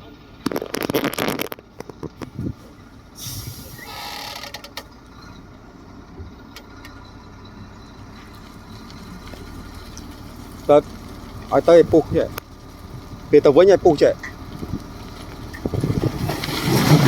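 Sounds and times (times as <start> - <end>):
diesel engine running: 0.0 - 17.0
hiss: 3.2 - 4.2.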